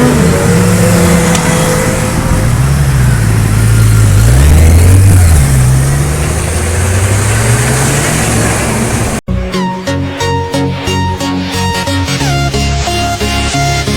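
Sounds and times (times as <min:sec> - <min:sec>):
motorcycle engine revving: 0:00.0 - 0:09.2.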